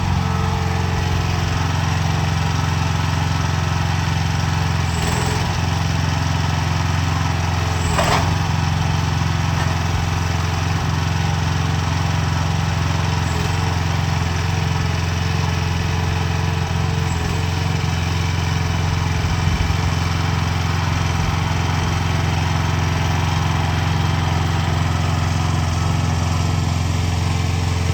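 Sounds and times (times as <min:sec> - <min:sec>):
single-cylinder engine running: 0:00.0 - 0:27.9
brief engine knock: 0:07.8 - 0:08.5.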